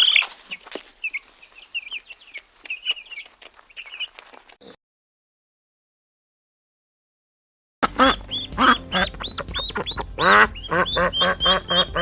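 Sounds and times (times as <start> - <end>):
chickens calling: 0.0 - 4.5, 7.8 - 12.0
clicks and scuffles: 2.4 - 4.8.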